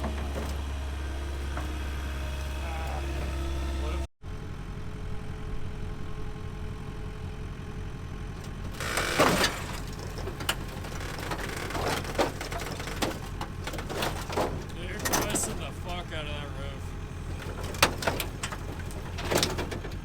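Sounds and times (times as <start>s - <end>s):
creaks and knocks: 0.0s - 3.6s, 8.4s - 16.2s, 17.0s - 20.0s
sheet metal crunching and scraping: 0.0s - 3.9s, 8.4s - 20.0s
vehicle engine running: 0.0s - 20.0s.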